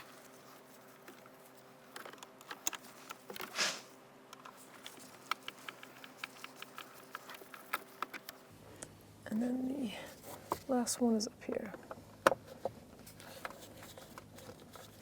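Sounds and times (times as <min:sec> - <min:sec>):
scraping hiss: 0:03.5 - 0:04.0.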